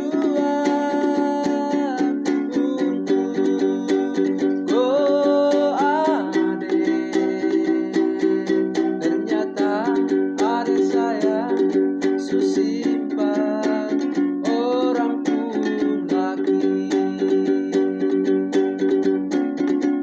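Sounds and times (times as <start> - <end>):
ukulele strumming: 0.0 - 20.0.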